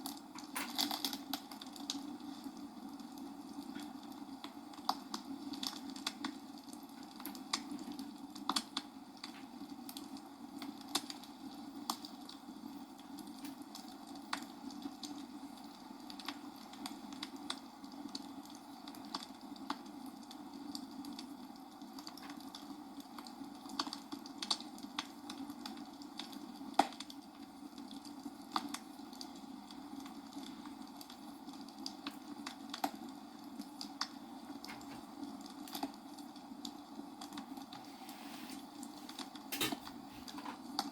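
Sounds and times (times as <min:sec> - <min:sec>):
sharp clicks and crackles: 0:00.0 - 0:02.1, 0:03.1 - 0:12.4, 0:22.0 - 0:37.8.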